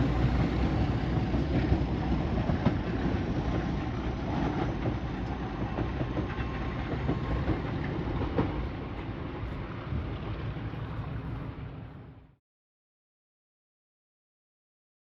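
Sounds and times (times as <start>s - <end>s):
train wheels clattering over rail joints: 0.0s - 10.5s.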